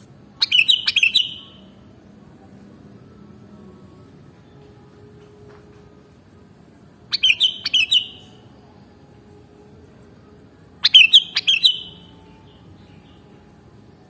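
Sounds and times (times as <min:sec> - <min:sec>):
bulbul song: 0:00.0 - 0:02.2, 0:06.6 - 0:14.0.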